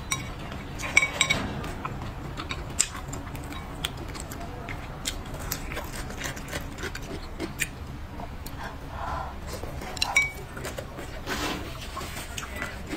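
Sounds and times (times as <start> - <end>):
chewing with wet smacks: 0.0 - 12.9
biting food: 0.4 - 7.8.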